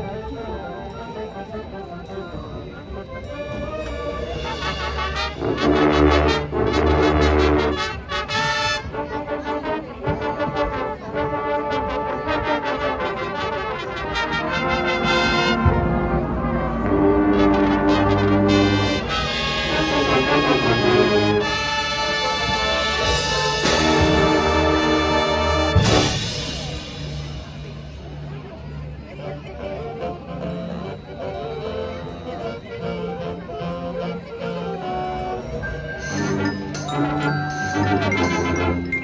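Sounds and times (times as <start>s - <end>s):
marching band brass chords: 0.0s - 39.0s
low drums: 12.6s - 30.6s.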